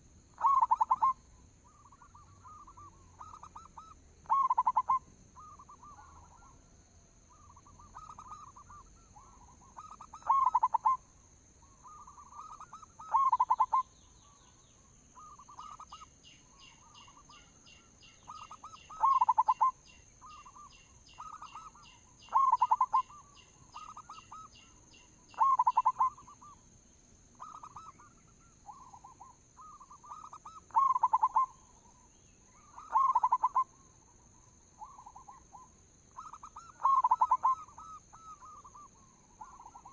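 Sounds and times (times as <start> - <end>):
doves cooing: 0.4 - 6.6, 7.3 - 11.0, 11.9 - 13.8, 18.3 - 24.5, 25.3 - 26.5, 28.7 - 31.6, 32.7 - 33.7, 36.2 - 39.9.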